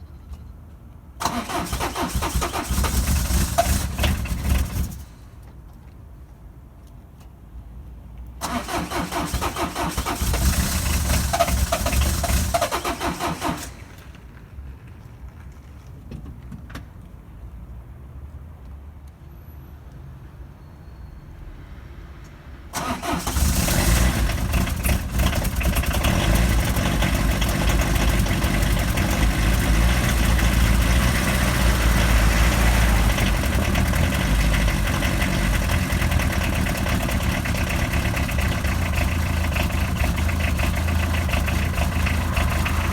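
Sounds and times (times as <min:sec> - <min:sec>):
starter motor cranking: 0:01.2 - 0:05.0, 0:08.4 - 0:13.8, 0:22.8 - 0:42.9
diesel engine idling: 0:08.4 - 0:14.2, 0:22.8 - 0:42.9.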